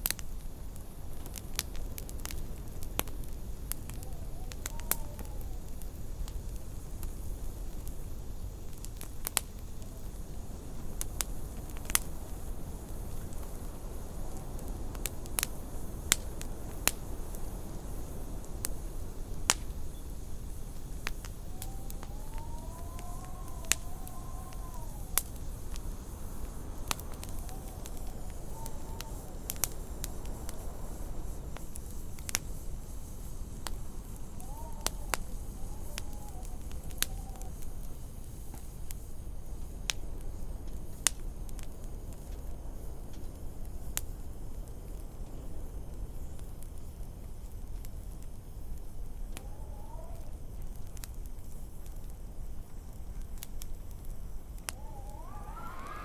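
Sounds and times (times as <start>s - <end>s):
wood fire crackling and popping: 0.0s - 56.0s
storm wind rumbling and howling: 1.2s - 41.0s, 48.9s - 51.0s, 54.5s - 56.0s.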